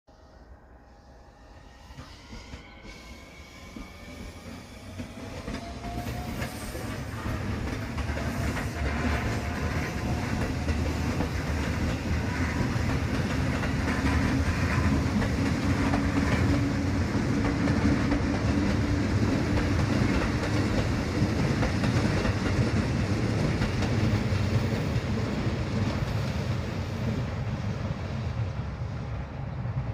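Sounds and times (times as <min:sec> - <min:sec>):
train motor whine: 0:00.1 - 0:20.3
train wheels rumbling on rails: 0:01.6 - 0:29.9.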